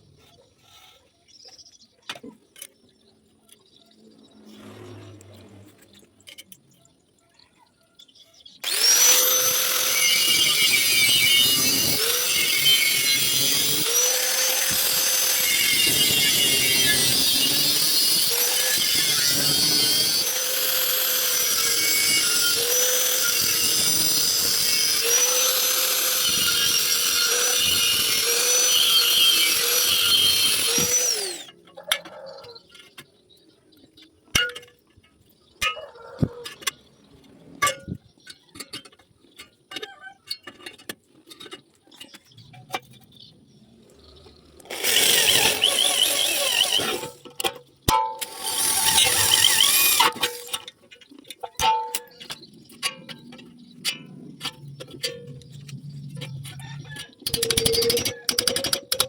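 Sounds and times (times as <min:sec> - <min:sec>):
handheld power tool running: 0:08.6 - 0:31.5, 0:44.6 - 0:47.5, 0:48.2 - 0:50.6.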